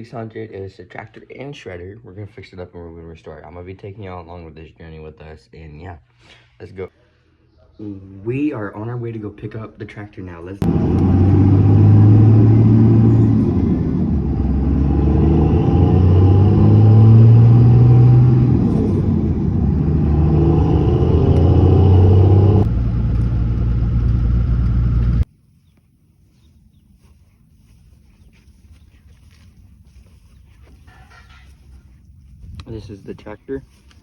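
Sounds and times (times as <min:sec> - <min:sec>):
vehicle engine driving: 0:10.6 - 0:25.3.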